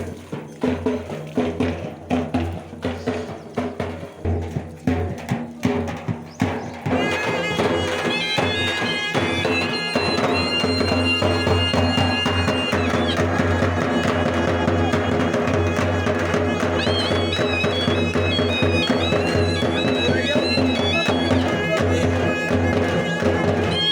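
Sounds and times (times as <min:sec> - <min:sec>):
drum strokes: 0:00.0 - 0:23.9
wind instrument melody: 0:06.8 - 0:23.9.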